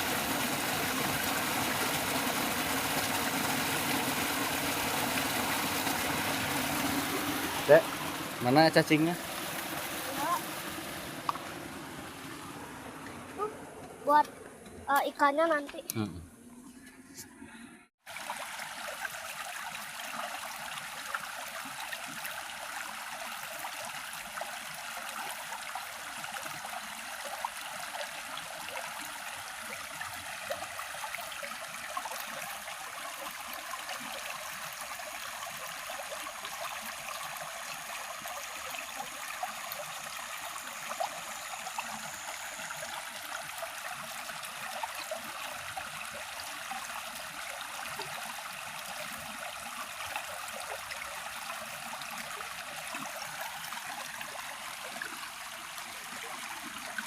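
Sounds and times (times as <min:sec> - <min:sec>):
crackling splashes: 0:00.0 - 0:14.4
flowing water: 0:00.0 - 0:15.9, 0:18.0 - 0:57.0.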